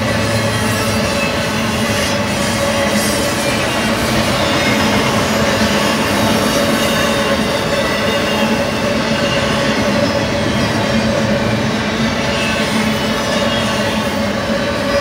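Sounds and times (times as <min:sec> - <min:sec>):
steel wheels rumbling on rail: 0:00.0 - 0:15.0.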